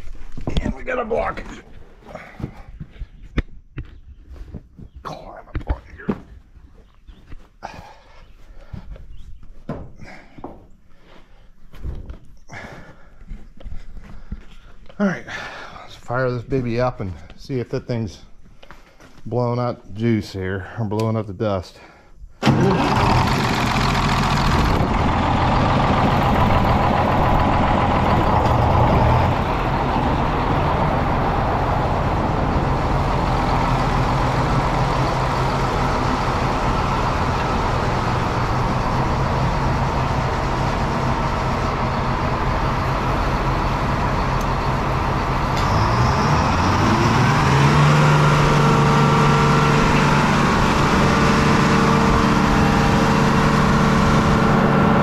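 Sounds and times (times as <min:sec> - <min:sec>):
dust blower: 0:22.4 - 0:29.2, 0:45.6 - 0:55.0
sawmill engine running: 0:22.4 - 0:55.0.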